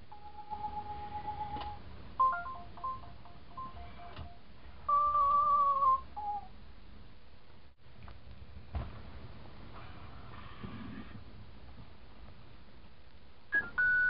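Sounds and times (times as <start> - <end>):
wavering electronic tone: 0.1 - 6.4.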